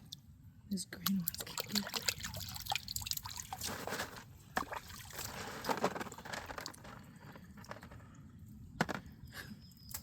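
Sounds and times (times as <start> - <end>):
creek water sloshing and trickling: 1.0 - 7.0.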